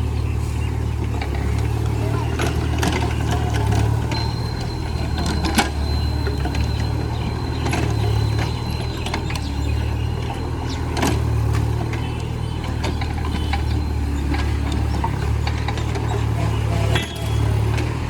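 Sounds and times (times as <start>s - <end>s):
excavator diesel engine running: 0.0s - 18.0s
metallic clanks and knocks: 2.4s - 9.5s.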